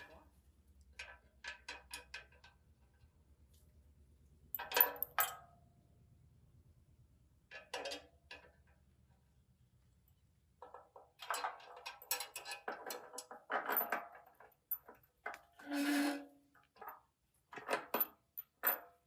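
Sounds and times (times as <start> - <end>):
metal parts clinking and knocking: 4.5 - 5.4, 10.6 - 15.4, 16.8 - 19.0.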